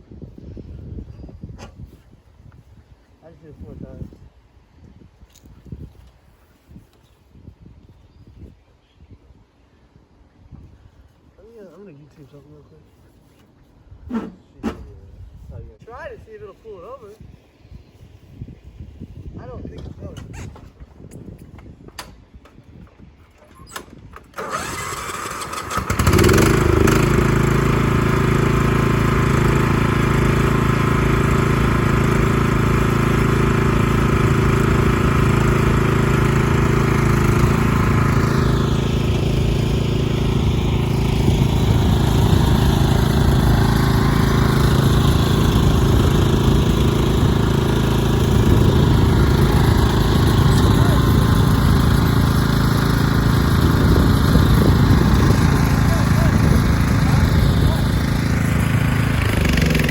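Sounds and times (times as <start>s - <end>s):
small engine running: 24.3s - 59.9s.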